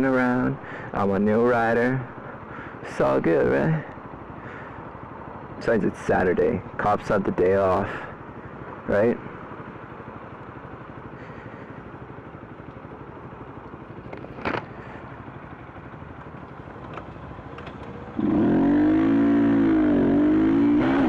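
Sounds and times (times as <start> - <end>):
motorcycle engine revving: 16.9 - 21.0.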